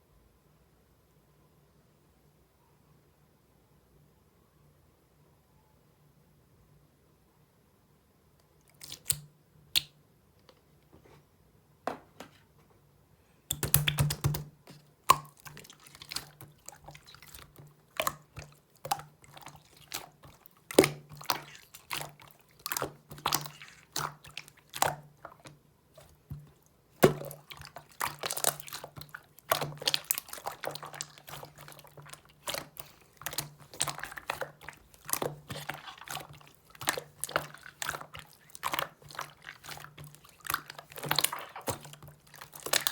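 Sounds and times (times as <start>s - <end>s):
slime clicking and popping: 13.5s - 14.5s, 15.1s - 17.0s.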